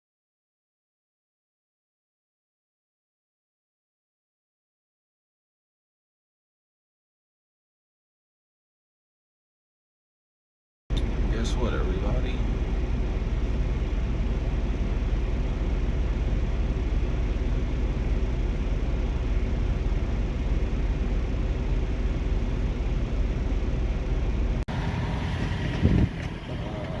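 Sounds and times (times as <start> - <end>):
truck engine humming: 10.9 - 27.0
gusty wind noise: 21.8 - 27.0.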